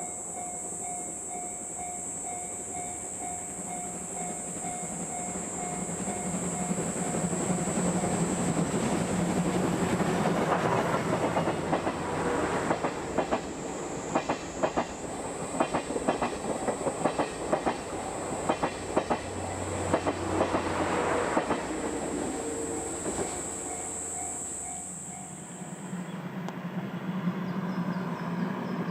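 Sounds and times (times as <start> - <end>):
steady train rumble: 0.0 - 28.9
train wheels clattering over rail joints: 14.1 - 22.4.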